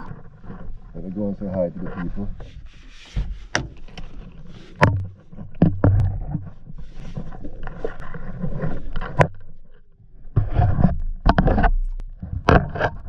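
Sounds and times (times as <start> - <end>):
rustling: 0.0 - 9.7
sharp clicks and clunks: 4.8 - 6.5, 10.4 - 13.0.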